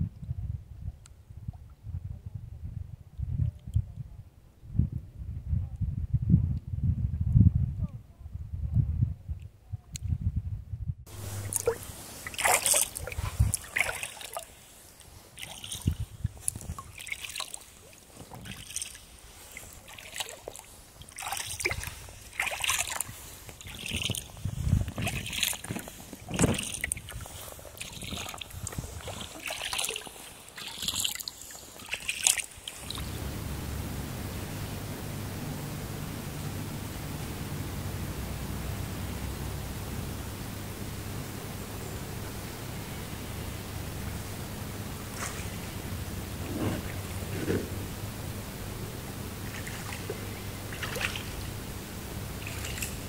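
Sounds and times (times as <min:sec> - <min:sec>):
kayak paddle splashing in water: 0:11.1 - 0:33.3, 0:45.0 - 0:47.9, 0:49.4 - 0:51.6, 0:52.3 - 0:53.0
steady hiss: 0:11.1 - 0:53.0.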